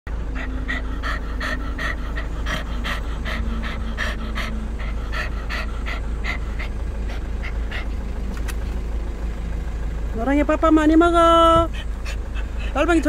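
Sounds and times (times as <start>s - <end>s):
dog panting rapidly: 0.1s - 8.8s, 11.5s - 13.0s
steady low rumble: 0.1s - 13.0s.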